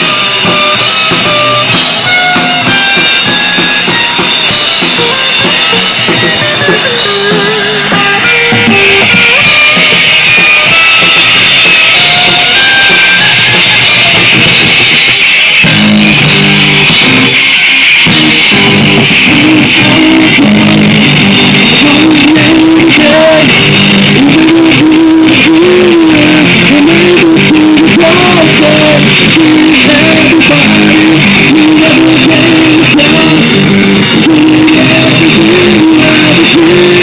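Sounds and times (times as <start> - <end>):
person singing: 0.0 - 10.0, 18.2 - 37.0
rock band playing: 0.0 - 37.0.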